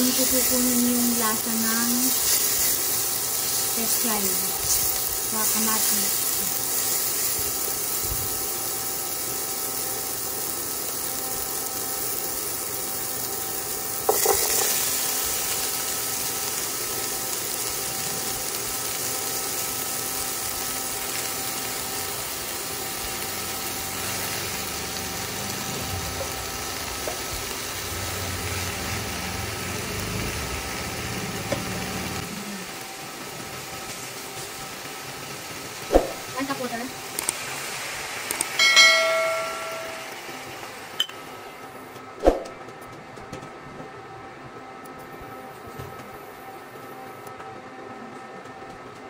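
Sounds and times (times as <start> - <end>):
vegetables sizzling in oil: 0.0 - 41.6.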